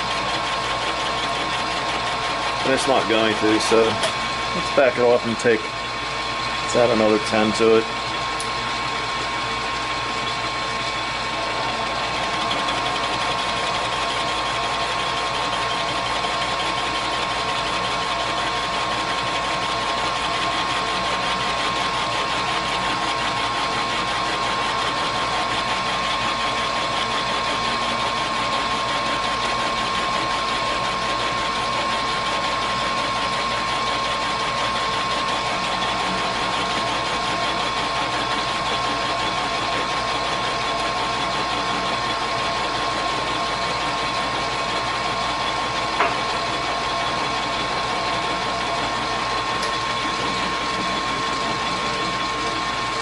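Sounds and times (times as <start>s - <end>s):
metal lathe whining: 0.0s - 53.0s.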